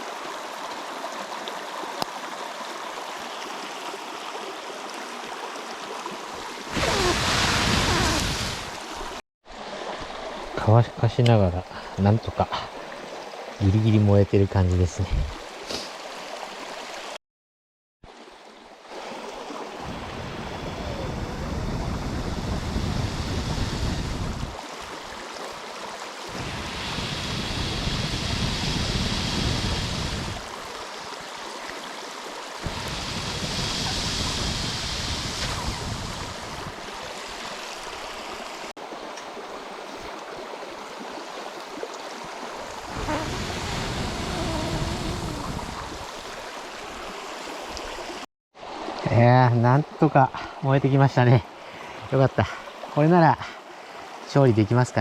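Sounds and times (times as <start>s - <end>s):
flowing water rushing: 0.0s - 17.2s, 18.0s - 54.7s
wind rumbling on microphone: 19.8s - 24.6s, 26.3s - 30.7s, 32.6s - 37.1s, 42.7s - 46.4s.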